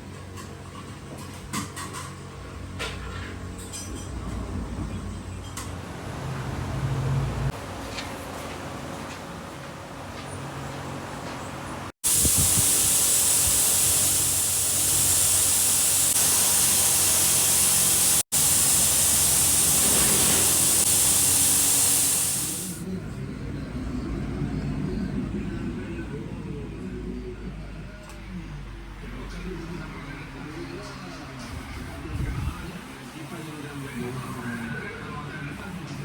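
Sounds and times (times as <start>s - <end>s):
compressed-air spray gun hissing: 12.0s - 22.8s.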